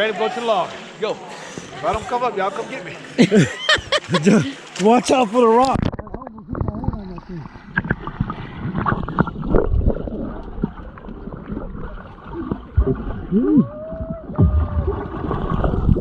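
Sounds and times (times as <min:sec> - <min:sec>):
water sloshing and splashing: 0:03.0 - 0:16.0.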